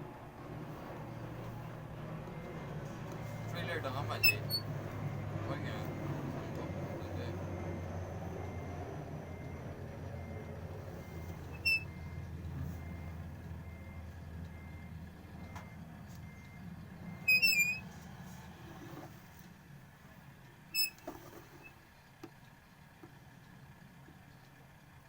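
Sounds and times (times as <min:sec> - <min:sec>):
vehicle low rumble: 0:00.0 - 0:25.0
faint repeating electronic beep: 0:03.4 - 0:04.7, 0:11.0 - 0:12.2, 0:14.6 - 0:17.8
short high squeaks: 0:04.1 - 0:04.7, 0:11.5 - 0:12.0, 0:17.2 - 0:17.9, 0:20.7 - 0:21.8.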